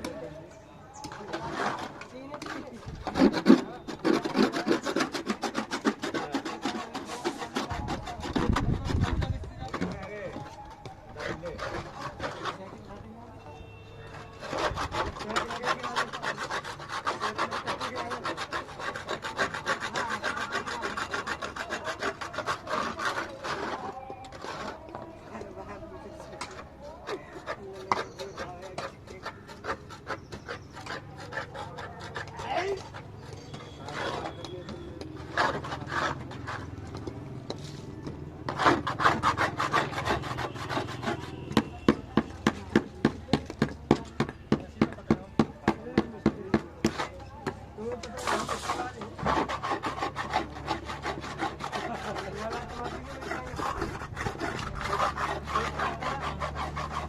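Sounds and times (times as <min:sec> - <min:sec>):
hand tool scraping: 0:00.0 - 0:13.3, 0:14.0 - 0:57.0.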